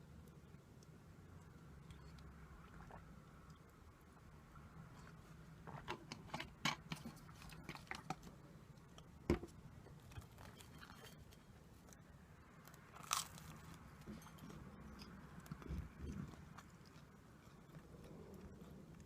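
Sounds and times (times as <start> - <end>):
crunchy chewing: 12.6 - 19.0.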